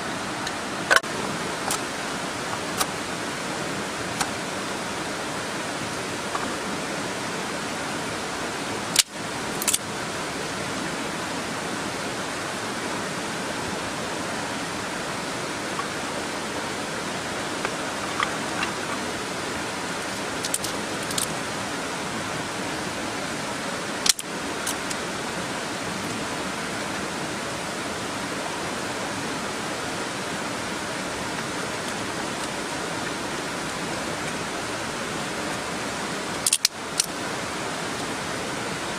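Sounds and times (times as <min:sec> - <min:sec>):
mountain stream rushing: 0:00.0 - 0:38.9.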